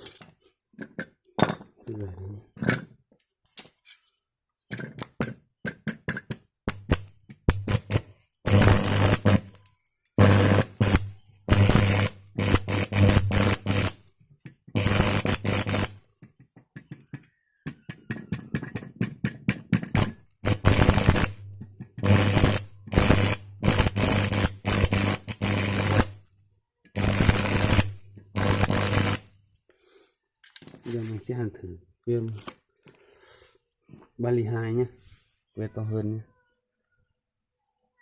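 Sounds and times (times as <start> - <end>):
welding arc crackling: 6.7 - 9.6, 10.2 - 14.1, 14.8 - 16.1, 19.9 - 26.3, 27.0 - 29.4.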